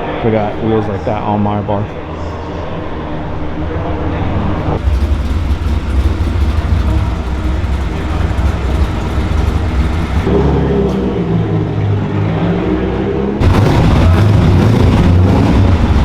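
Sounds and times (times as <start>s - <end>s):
car engine rumbling: 1.9s - 16.0s
pitched engine note: 4.2s - 11.8s.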